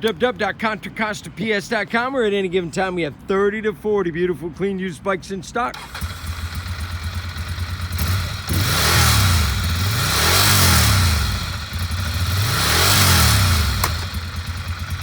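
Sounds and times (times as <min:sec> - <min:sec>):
motorcycle engine idling and revving: 0:05.7 - 0:15.0.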